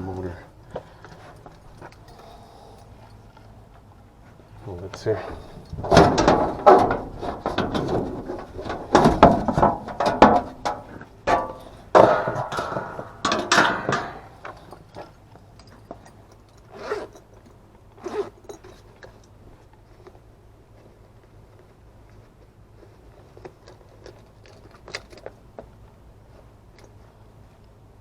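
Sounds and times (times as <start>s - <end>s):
metal tools clattering and scraping: 5.0s - 17.4s.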